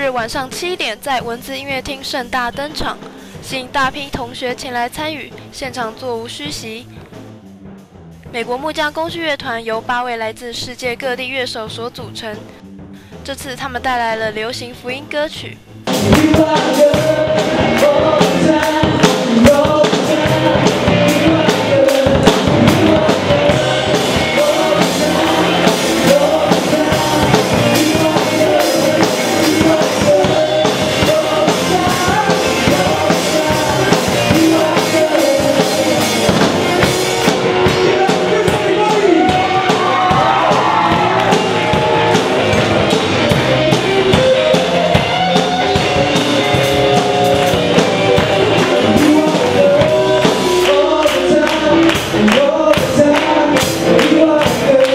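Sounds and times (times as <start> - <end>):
guitar: 0.0 - 54.9
drum kit: 15.7 - 54.9
voices singing: 15.9 - 54.9.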